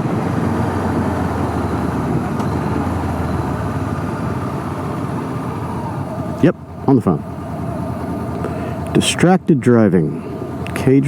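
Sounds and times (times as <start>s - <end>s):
motorcycle engine running: 0.0s - 11.0s
wind and road rush: 0.0s - 11.0s.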